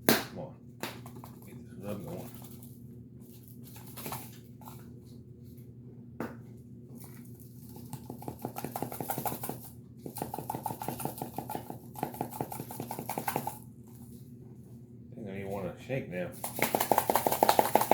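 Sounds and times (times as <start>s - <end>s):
seasoning container rattling: 8.0s - 13.6s, 16.4s - 17.9s.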